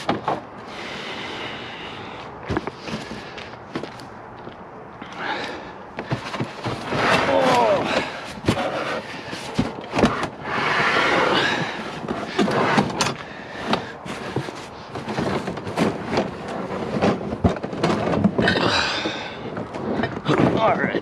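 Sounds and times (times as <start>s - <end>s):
scrap metal clanking: 5.2s - 21.0s.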